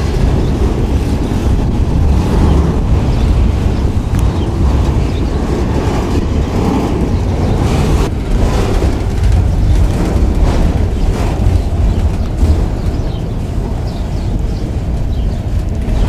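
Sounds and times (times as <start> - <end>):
train wheels rumbling on rail: 0.0 - 16.0
wind on microphone: 0.0 - 16.0.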